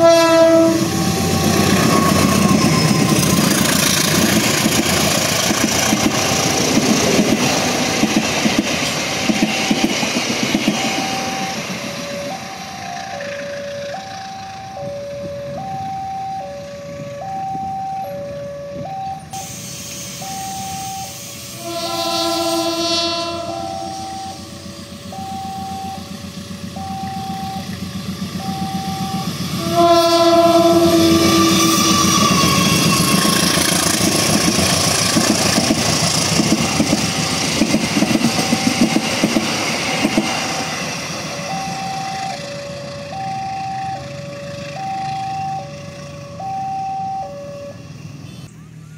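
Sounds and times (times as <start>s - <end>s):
train horn: 0.0s - 3.0s, 20.6s - 24.6s, 28.9s - 33.8s
two-tone crossing warning signal: 0.0s - 48.9s
train wheel clacks: 1.1s - 13.2s, 31.5s - 41.8s.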